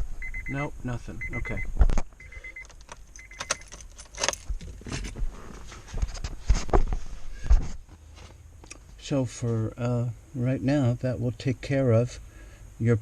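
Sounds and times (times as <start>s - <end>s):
high car beeps: 0.2s - 3.7s
car keys jangling: 2.5s - 5.2s.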